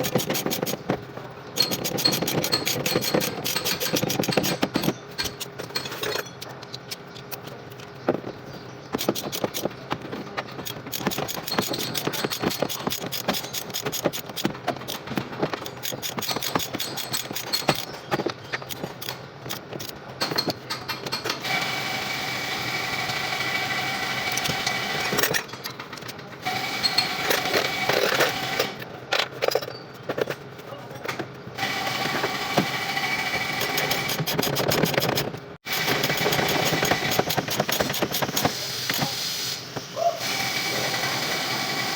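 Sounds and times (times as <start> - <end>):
hand tools clicking and clinking: 0.0 - 21.5, 24.3 - 32.8, 33.4 - 39.2.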